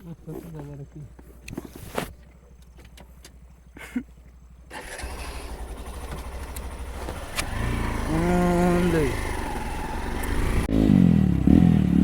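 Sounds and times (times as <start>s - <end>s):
motorcycle engine starting and running: 4.6s - 12.0s.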